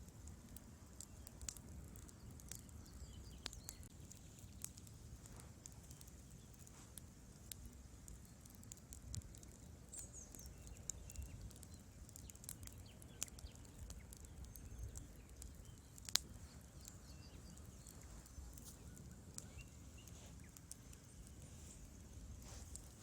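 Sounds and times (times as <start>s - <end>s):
low rumble of flames: 0.0s - 23.0s
wood fire crackling: 0.0s - 23.0s.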